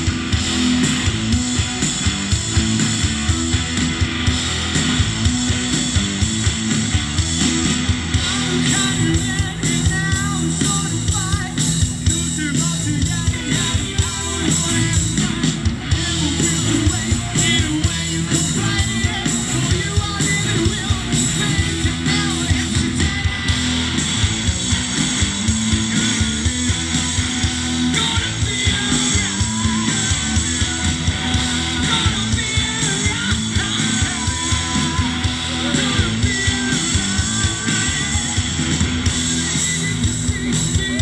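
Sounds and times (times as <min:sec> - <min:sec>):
rock band playing live: 0:00.0 - 0:41.0
person singing: 0:08.1 - 0:23.7, 0:27.6 - 0:41.0.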